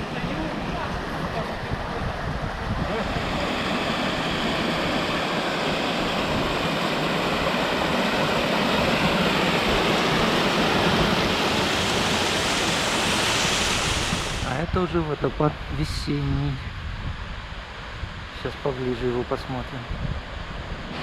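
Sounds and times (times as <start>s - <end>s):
waterfall rushing: 0.0s - 14.8s.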